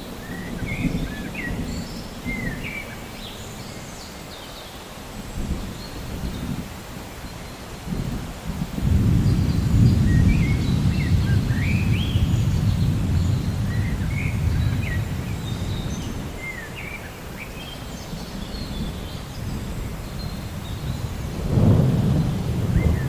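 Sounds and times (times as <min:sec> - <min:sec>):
thunder rumbling: 0:00.0 - 0:03.1, 0:07.8 - 0:16.5, 0:18.8 - 0:23.0
small birds chirping: 0:00.0 - 0:08.3, 0:08.9 - 0:23.0
steady rain: 0:00.0 - 0:23.0.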